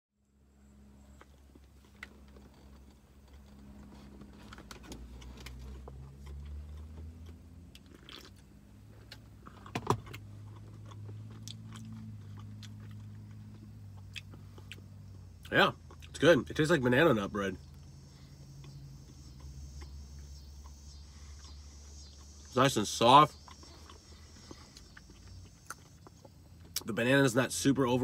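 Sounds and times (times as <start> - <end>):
steady low hum: 0.2 - 28.0
person chewing: 1.2 - 16.2, 17.6 - 22.5, 23.3 - 26.9
wet mouth clicks: 23.4 - 26.9.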